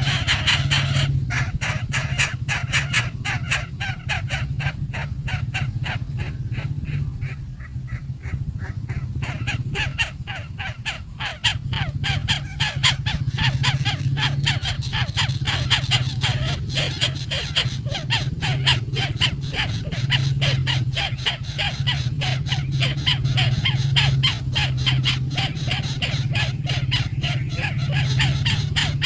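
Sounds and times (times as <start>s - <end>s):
chicks calling: 0.0s - 29.0s
steady low hum: 0.0s - 29.0s.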